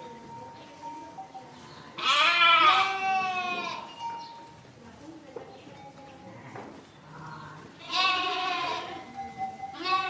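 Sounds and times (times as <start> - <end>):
sheep bleating: 2.0 - 3.9, 7.8 - 9.0, 9.7 - 10.0.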